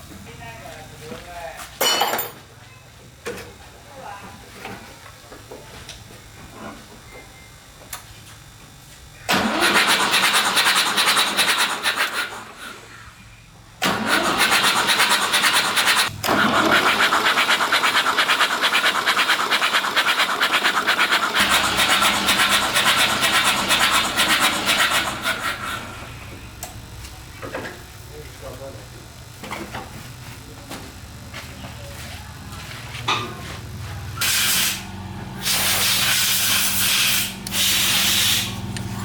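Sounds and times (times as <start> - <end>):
engine running with pulsing beat: 14.6 - 27.6, 29.3 - 39.0.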